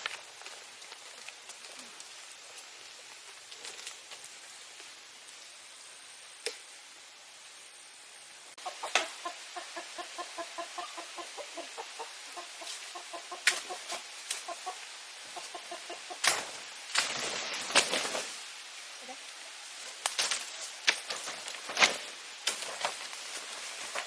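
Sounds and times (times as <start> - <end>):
hen clucking: 8.6 - 16.4
wing-flapping: 16.2 - 18.5.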